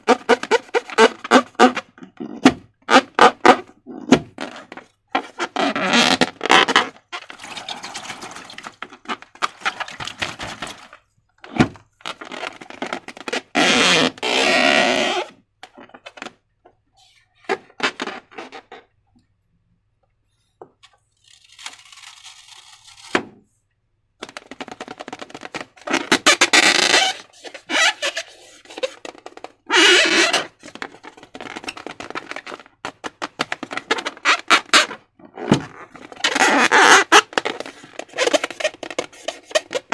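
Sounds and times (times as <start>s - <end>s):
hands handling slime and balloons: 0.0s - 19.0s, 20.4s - 39.9s.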